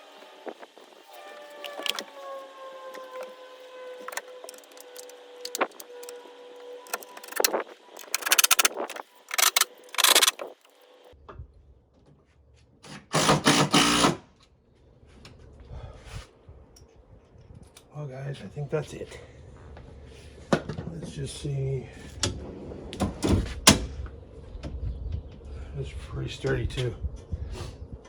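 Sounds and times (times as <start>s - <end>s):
clicks and knocks of tools: 1.6s - 2.1s, 4.0s - 6.2s, 6.9s - 10.7s
power driver driving bolts: 4.0s - 6.2s, 6.9s - 10.6s.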